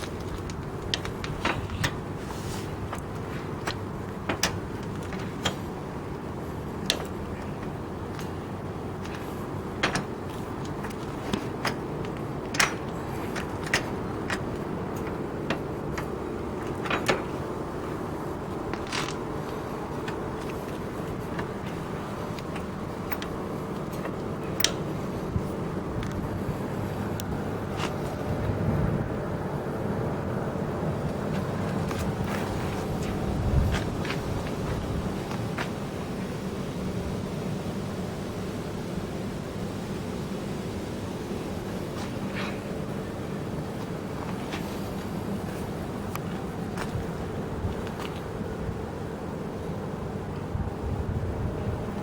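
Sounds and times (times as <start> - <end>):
tractor engine running: 0.0 - 39.6
sharp clicks and clanks: 2.9 - 25.4.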